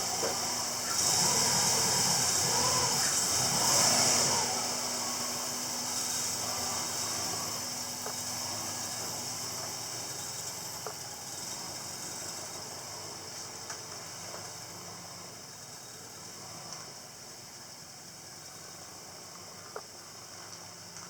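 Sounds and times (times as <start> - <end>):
engine running: 0.0 - 21.0.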